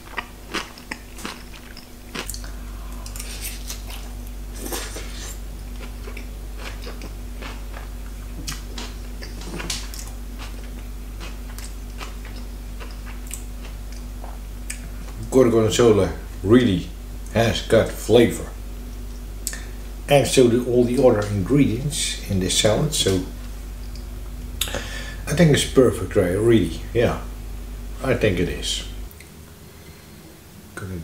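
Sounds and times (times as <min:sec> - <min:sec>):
person chewing salad: 0:00.0 - 0:15.2, 0:23.7 - 0:25.2
low hum: 0:00.0 - 0:31.0.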